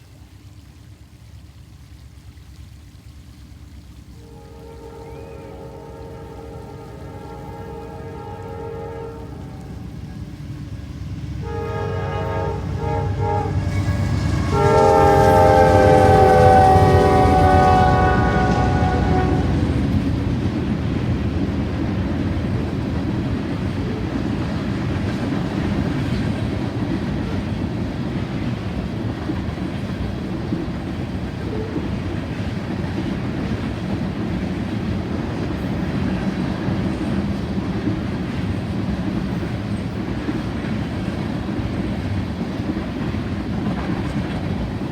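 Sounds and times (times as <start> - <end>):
passing train rumbling: 0.0 - 44.9
locomotive air horn blasts: 4.1 - 10.3, 11.4 - 20.1
rail clatter: 5.0 - 44.9.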